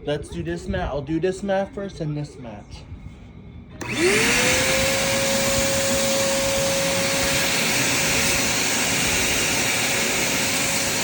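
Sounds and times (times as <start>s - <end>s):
vacuum cleaner running: 3.8s - 11.0s.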